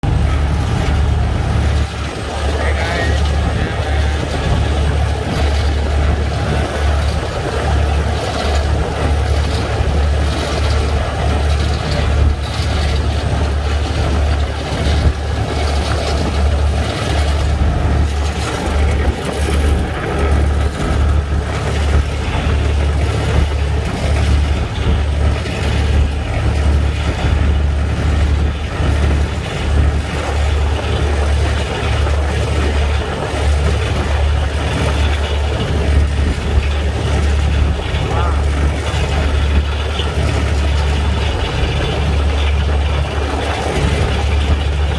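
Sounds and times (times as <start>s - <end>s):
road noise: 0.0s - 44.9s
vehicle engine drone: 0.0s - 44.9s.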